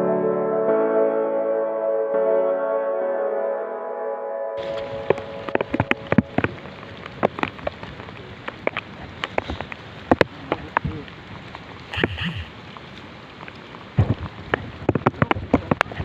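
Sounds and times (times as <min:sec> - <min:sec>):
rain hissing: 0:04.6 - 0:16.0
raindrops tapping on surface: 0:04.6 - 0:16.0.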